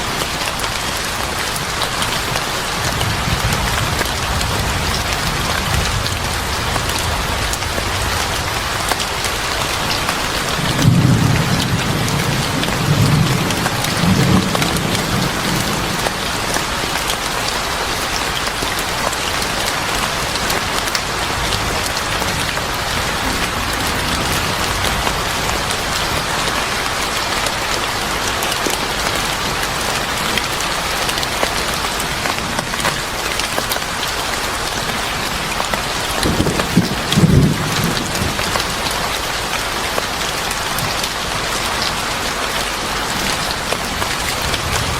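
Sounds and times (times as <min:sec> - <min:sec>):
heavy rain: 0:00.0 - 0:44.9
low rumble of thunder: 0:02.8 - 0:16.7, 0:21.3 - 0:26.8, 0:36.1 - 0:39.0.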